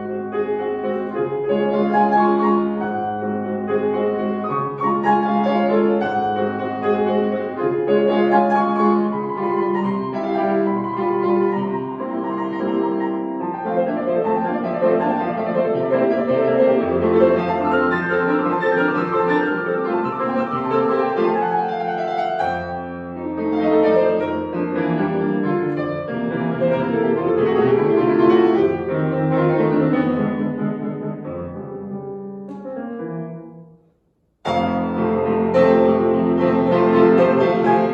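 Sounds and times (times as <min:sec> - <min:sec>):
solo piano piece: 0:00.0 - 0:37.9.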